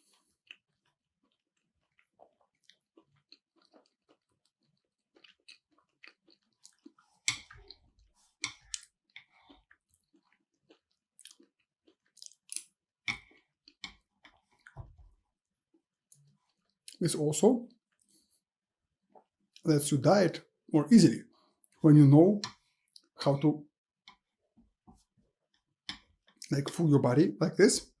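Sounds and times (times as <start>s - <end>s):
wet chewing clicks and smacks: 0.0s - 14.8s, 22.5s - 23.2s.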